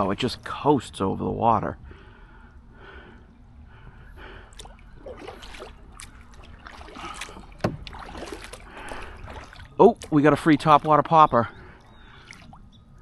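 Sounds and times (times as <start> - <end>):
paddle splashing water: 4.0 - 12.7.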